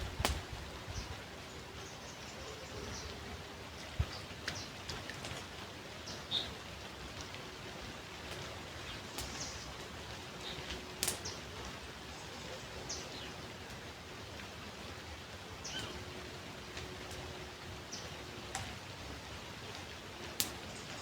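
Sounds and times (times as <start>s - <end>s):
birds chirping: 0.9s - 5.1s, 6.0s - 6.6s, 8.7s - 13.5s, 15.4s - 18.7s.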